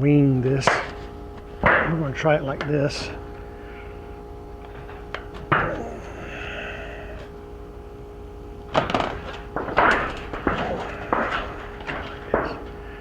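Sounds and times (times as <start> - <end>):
clattering and scraping handling noises: 8.7 - 13.0.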